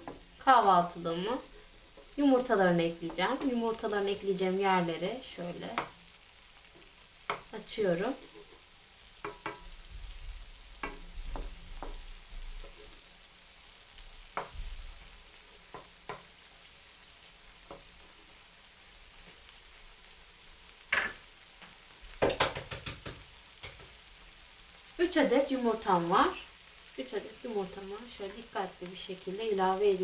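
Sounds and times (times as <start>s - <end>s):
food sizzling in a frying pan: 0.0s - 30.0s
wooden spoon scraping a pan: 6.8s - 9.6s, 12.6s - 13.0s.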